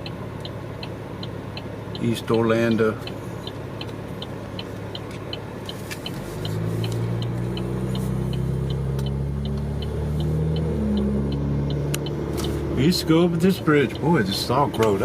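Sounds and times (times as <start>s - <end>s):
light ticking: 0.0s - 15.0s
car engine speeding up: 4.3s - 15.0s.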